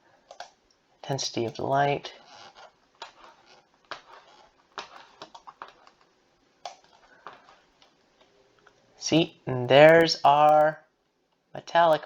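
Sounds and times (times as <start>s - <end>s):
computer clicks: 0.3s - 0.6s.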